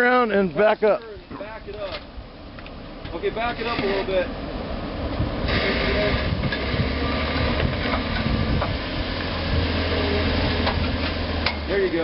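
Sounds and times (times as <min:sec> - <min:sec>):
vehicle engine at low revs: 0:01.2 - 0:12.0.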